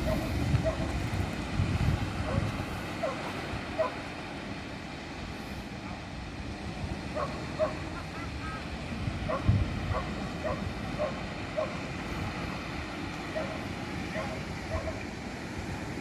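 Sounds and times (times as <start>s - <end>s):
dog barking: 0.0s - 0.9s, 2.2s - 3.2s, 3.8s - 4.0s, 7.2s - 7.8s, 9.3s - 11.8s, 13.3s - 15.0s.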